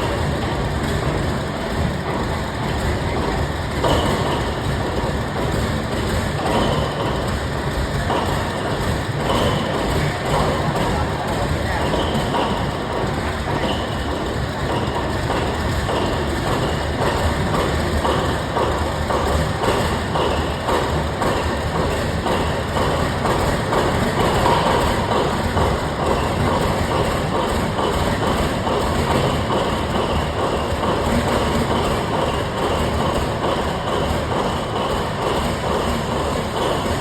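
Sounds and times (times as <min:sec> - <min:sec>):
diesel engine running loudly: 0:00.0 - 0:37.0.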